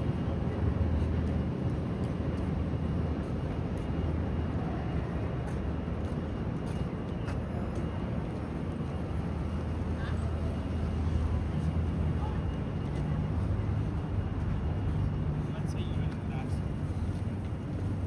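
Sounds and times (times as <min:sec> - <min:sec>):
city background rumble: 0:00.0 - 0:18.0.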